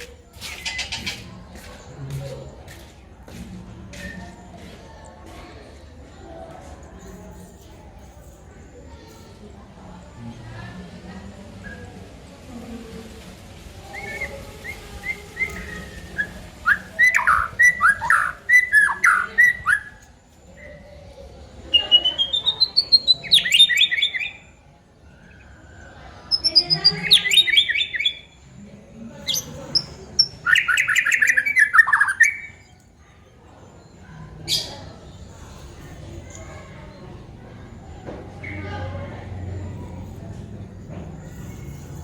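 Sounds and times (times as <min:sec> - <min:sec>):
bird singing rapid trills: 0:14.0 - 0:20.0, 0:21.7 - 0:24.6, 0:25.2 - 0:28.5, 0:29.2 - 0:32.8.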